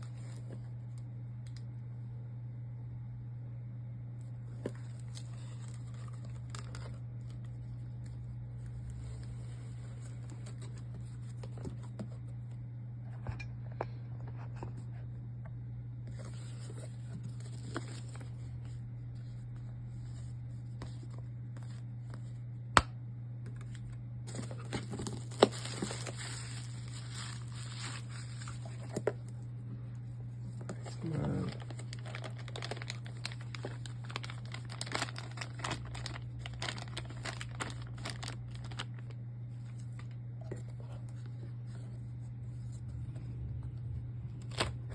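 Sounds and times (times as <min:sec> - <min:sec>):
steady low hum: 0:00.0 - 0:44.9
packaging rustling and tearing: 0:04.5 - 0:12.1, 0:16.1 - 0:18.4, 0:23.6 - 0:29.2, 0:30.7 - 0:40.2, 0:44.4 - 0:44.9.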